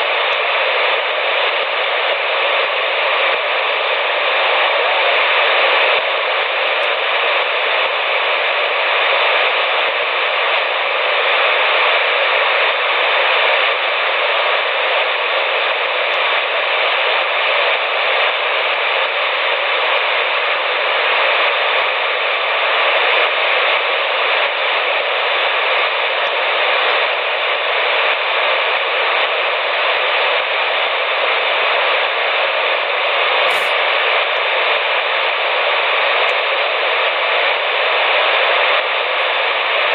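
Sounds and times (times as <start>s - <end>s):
radio static hiss: 0.0s - 39.9s
short click: 33.5s - 33.9s.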